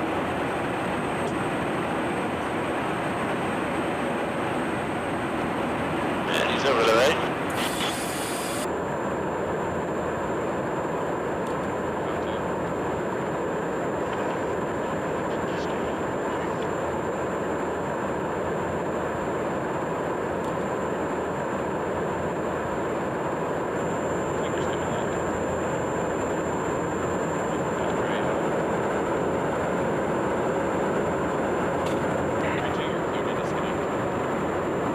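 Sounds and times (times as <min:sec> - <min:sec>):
thin high whine: 0:00.0 - 0:08.7, 0:22.9 - 0:34.9
jet engines rumbling: 0:00.0 - 0:34.9.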